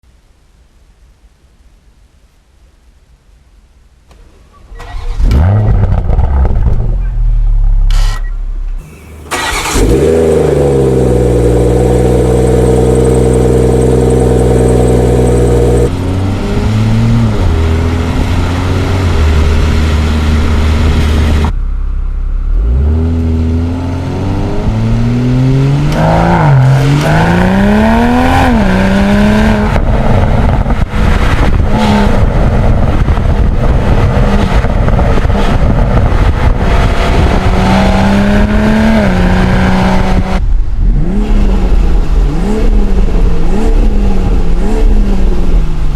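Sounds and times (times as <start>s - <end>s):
car engine starting and idling: 4.8s - 16.1s.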